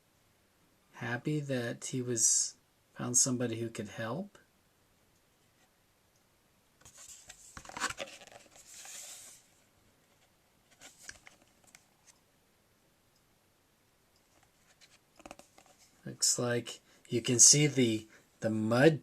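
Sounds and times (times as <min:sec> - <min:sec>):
book page turning: 0:06.8 - 0:12.2, 0:14.3 - 0:16.0
light clicks from handling book: 0:10.7 - 0:12.2, 0:14.2 - 0:15.9.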